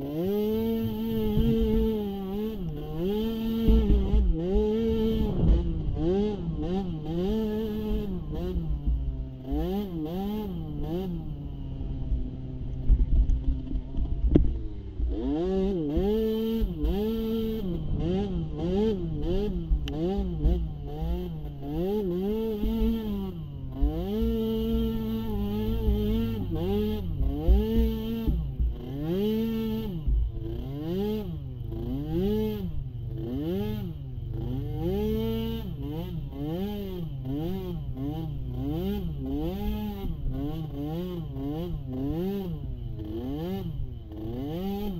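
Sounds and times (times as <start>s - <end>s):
atv engine revving: 0.0s - 44.9s.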